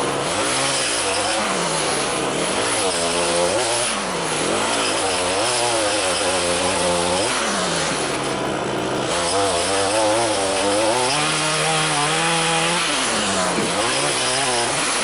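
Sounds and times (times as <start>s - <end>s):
two-stroke lawn tool engine revving: 0.0s - 15.0s.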